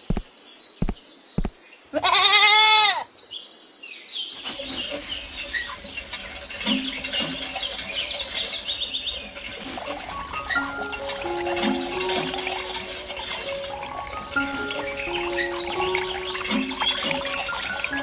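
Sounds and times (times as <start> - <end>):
birds chirping: 0.0 - 18.0
goat bleating: 1.9 - 3.1.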